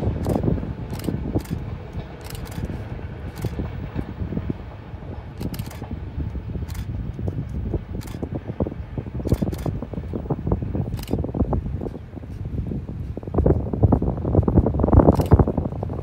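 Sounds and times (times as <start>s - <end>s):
distant train rumble: 0.0s - 16.0s
sharp clicks: 0.2s - 4.1s, 5.4s - 5.9s, 6.6s - 8.3s, 9.2s - 9.8s, 10.9s - 11.2s, 15.1s - 15.5s.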